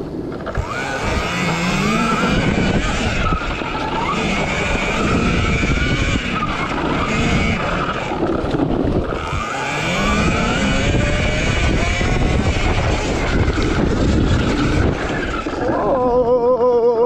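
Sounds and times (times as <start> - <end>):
electric motor whining: 0.3 - 16.4
heavy low rumble: 8.1 - 16.6.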